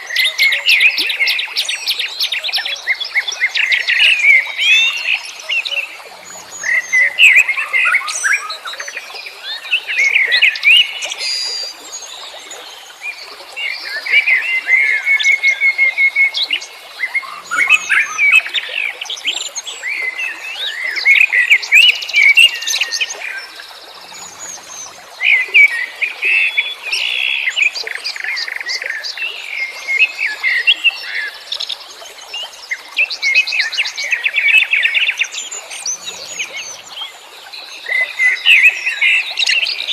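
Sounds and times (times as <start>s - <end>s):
songbirds chirping and singing: 16.0s - 26.0s.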